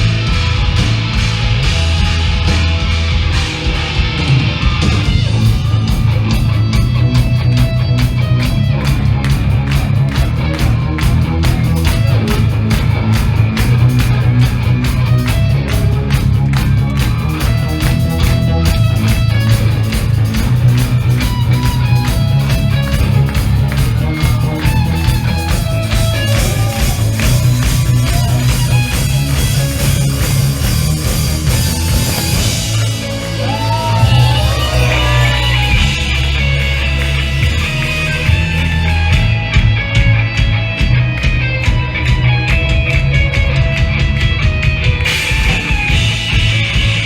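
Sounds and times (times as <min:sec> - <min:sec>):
bass guitar: 0:00.0 - 0:47.0
distorted electric guitars: 0:00.0 - 0:47.0
pounding drums: 0:00.0 - 0:47.0
shouted vocals: 0:33.3 - 0:35.8.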